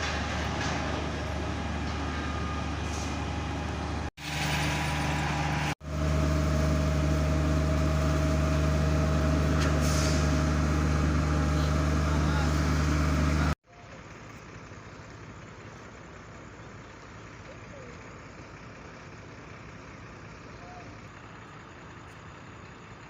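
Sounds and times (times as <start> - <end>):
diesel engine at high revs: 0.0 - 13.6.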